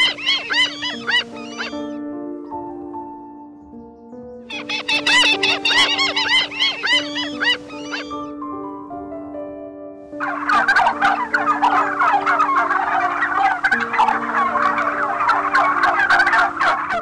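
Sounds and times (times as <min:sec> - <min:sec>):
flock of birds calling: 0:00.0 - 0:02.0, 0:04.5 - 0:08.3, 0:10.2 - 0:17.0
soft background music: 0:00.0 - 0:17.0.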